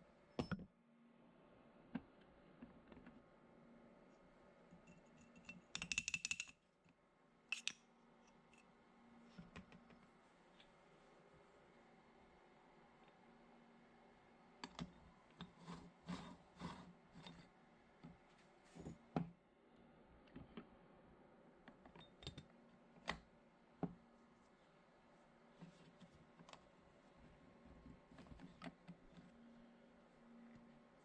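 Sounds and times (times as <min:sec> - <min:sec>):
small hard objects clicking: 0:05.8 - 0:06.6.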